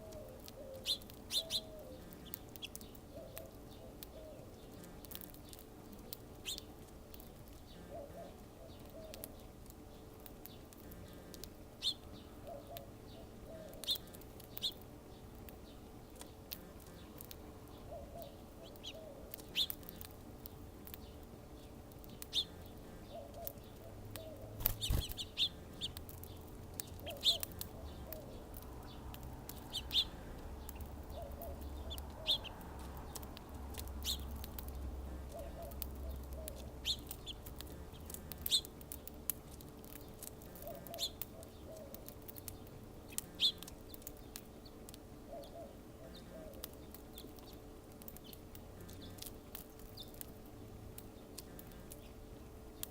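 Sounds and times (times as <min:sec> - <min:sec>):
low clucking bird call: 0:40.5 - 0:42.0.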